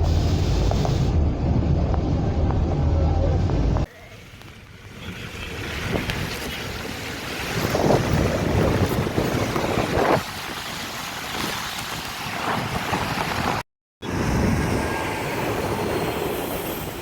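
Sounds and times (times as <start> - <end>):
floodwater surging and splashing: 3.9 - 13.6
wind buffeting microphone: 5.0 - 17.0.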